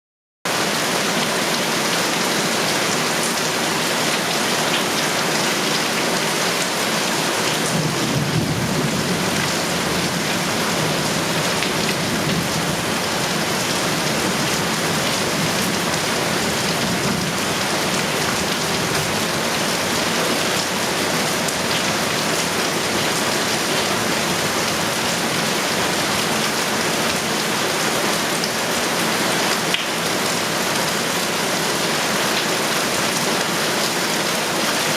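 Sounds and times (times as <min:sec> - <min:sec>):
heavy rain pouring: 0:00.5 - 0:34.9
low rumble of thunder: 0:07.6 - 0:12.9.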